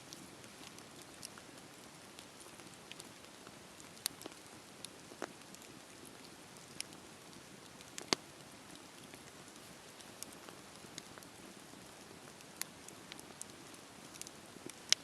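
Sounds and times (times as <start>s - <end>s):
fire crackles and pops: 0.0s - 15.0s
wood fire hissing: 0.0s - 15.0s.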